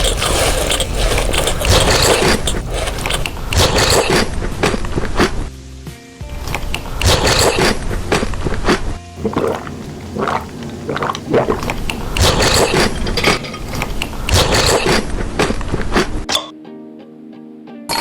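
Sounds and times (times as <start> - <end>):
chocolate crunching being chewed: 6.5 - 16.1.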